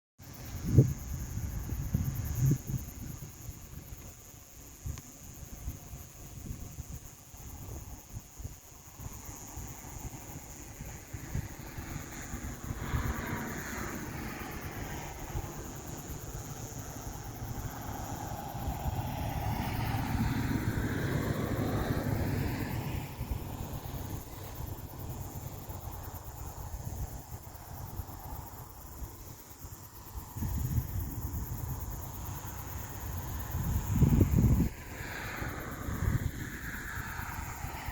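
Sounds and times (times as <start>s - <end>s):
vehicle passing: 17.1s - 25.3s.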